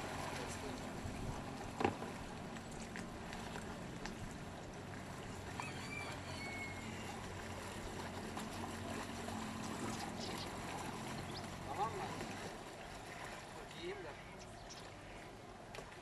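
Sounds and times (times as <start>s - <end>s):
motor idling hum: 0.0s - 12.9s
water lapping and trickling: 0.0s - 16.0s.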